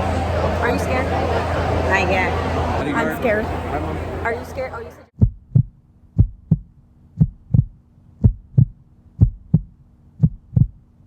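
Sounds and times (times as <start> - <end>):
heartbeat thumps: 5.2 - 10.8.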